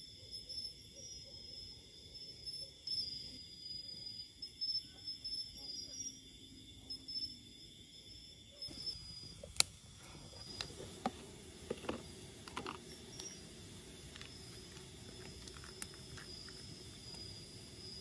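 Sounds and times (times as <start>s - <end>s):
faint high insect buzz: 0.0s - 18.0s.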